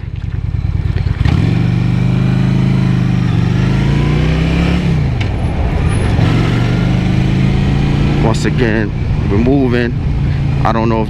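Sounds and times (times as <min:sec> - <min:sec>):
motorcycle engine accelerating: 0:00.0 - 0:11.0
wind rushing over microphone: 0:03.3 - 0:11.0.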